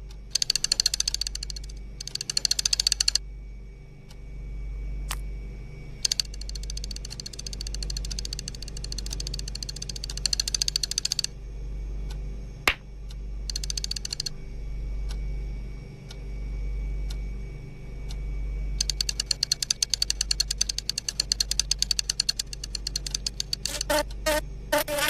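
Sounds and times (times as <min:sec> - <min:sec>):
low hum: 0:00.0 - 0:25.0
fast clicking: 0:00.3 - 0:03.2, 0:06.0 - 0:11.3, 0:13.5 - 0:14.3, 0:18.8 - 0:25.0.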